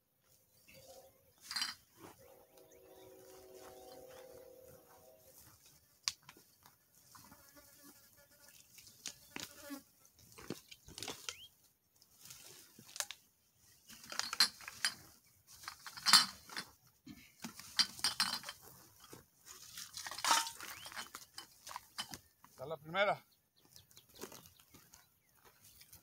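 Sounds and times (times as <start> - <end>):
rustling through dry brush: 0.2 - 7.4, 8.5 - 15.9, 18.6 - 22.6
short buzzing tone: 2.2 - 5.3.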